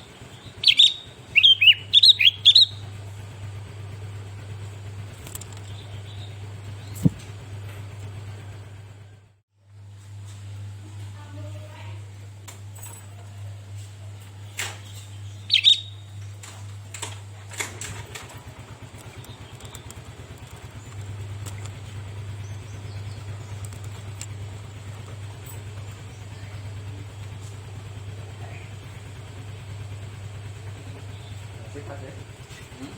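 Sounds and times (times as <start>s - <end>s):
steady low hum: 0.0s - 32.9s
bird giving loud call: 0.2s - 2.9s, 15.5s - 16.0s
sharp clicks: 5.1s - 6.2s, 16.4s - 25.9s.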